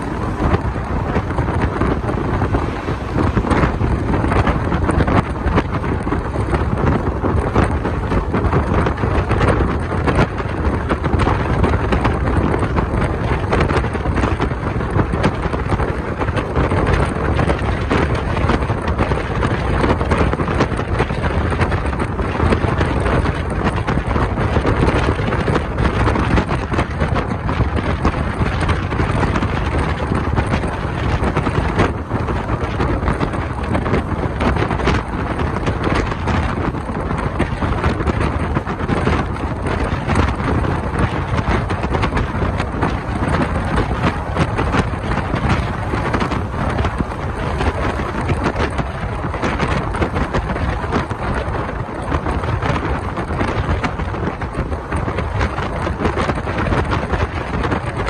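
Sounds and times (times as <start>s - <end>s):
train rumbling and rattling: 0.0s - 58.0s
wind buffeting microphone: 0.0s - 58.0s.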